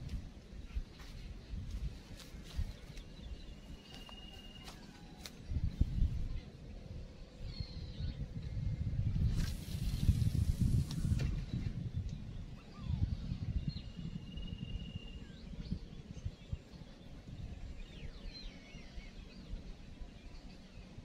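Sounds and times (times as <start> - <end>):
faint bird whistles: 12.6 - 15.4.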